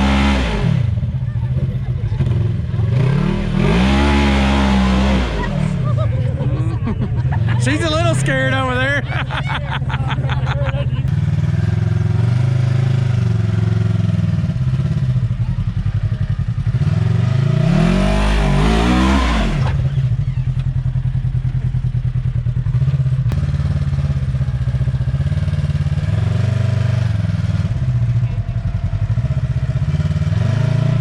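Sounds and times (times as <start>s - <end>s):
utility vehicle engine revving: 0.0s - 31.0s.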